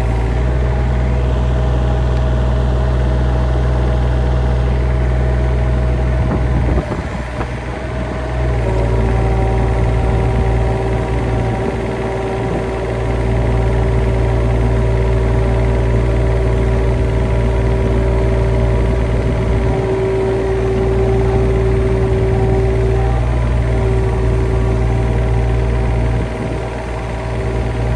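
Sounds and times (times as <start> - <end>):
engine running steadily: 0.0 - 27.9
steady whine: 6.2 - 27.9.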